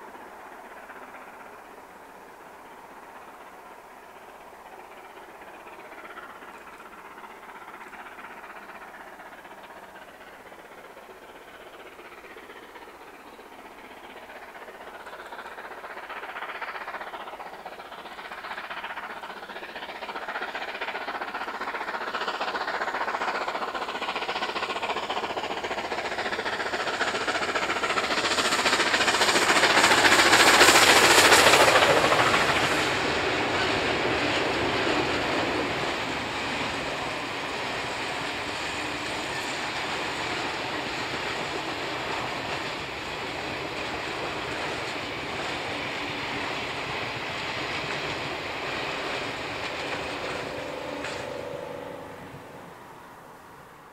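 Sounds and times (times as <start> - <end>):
carriages rolling on rails: 0.0 - 53.9
steam and diesel locomotives passing: 0.0 - 53.9.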